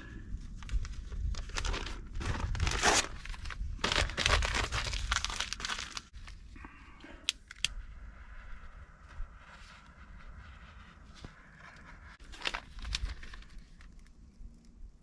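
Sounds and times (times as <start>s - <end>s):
newspaper tearing and crumpling: 0.7s - 6.2s, 12.2s - 13.9s.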